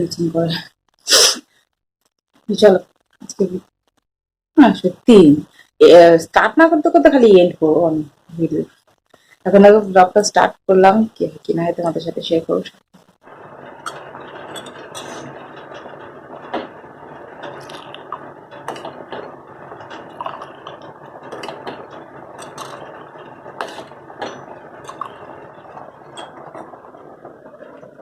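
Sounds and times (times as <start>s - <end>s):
heavy rain falling: 13.0s - 28.0s.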